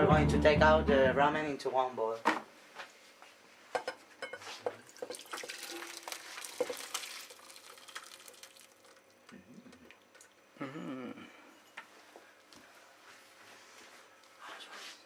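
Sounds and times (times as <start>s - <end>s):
liquid splashing into a bowl: 4.8s - 10.3s.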